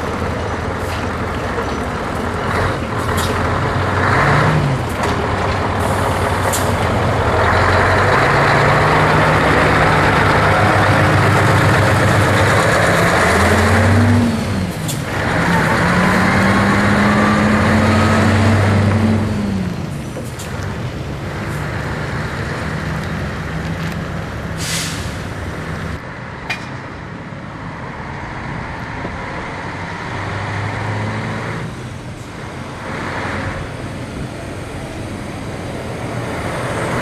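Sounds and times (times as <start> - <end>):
diesel engine running: 0.0 - 26.0
air hiss: 24.6 - 25.3.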